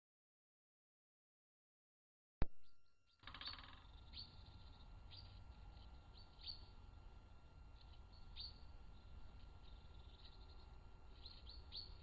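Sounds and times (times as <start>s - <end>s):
low background hum: 2.4s - 12.0s
high downward bird chirps: 2.6s - 6.8s, 7.8s - 12.0s.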